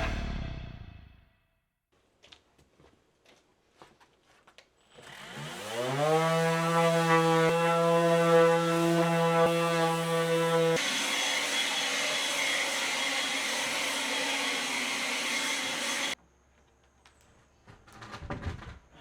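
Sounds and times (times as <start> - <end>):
power tool motor whining: 4.9 - 16.2.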